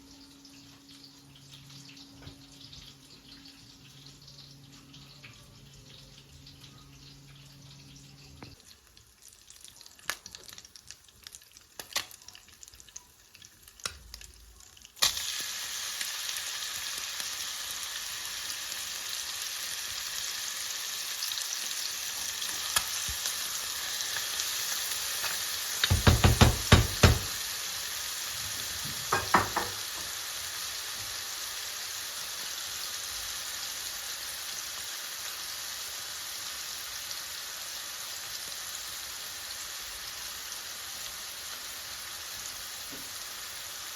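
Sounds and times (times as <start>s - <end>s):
food sizzling in a hot pan: 0.0s - 43.9s
loud knocks: 25.9s - 27.3s
utensil clinking on pan: 29.1s - 29.8s.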